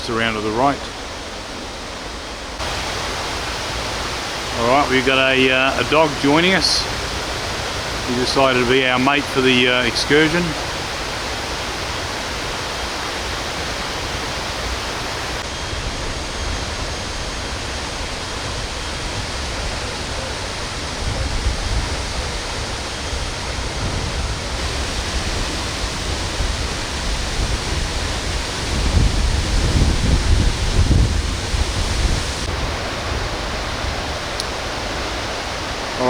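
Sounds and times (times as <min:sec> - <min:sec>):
waterfall roaring: 0:00.0 - 0:15.5, 0:17.6 - 0:36.0.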